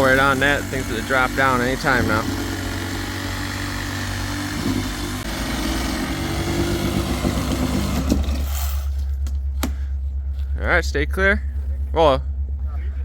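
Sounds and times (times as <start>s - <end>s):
power saw cutting wood: 0.0s - 8.9s
low engine hum: 0.0s - 13.0s.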